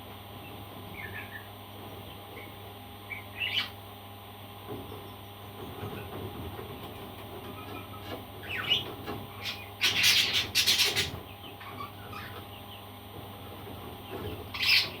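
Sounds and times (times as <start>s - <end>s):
low background hum: 0.0s - 15.0s
parrot chirping: 3.1s - 3.8s, 9.4s - 12.4s, 14.5s - 15.0s.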